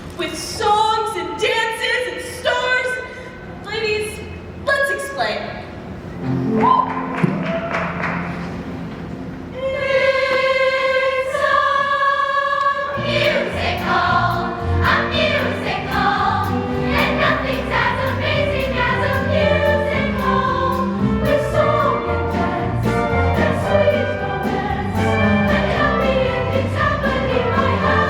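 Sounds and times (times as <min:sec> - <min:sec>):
choir singing: 0:09.5 - 0:28.0
instrumental accompaniment: 0:13.0 - 0:28.0.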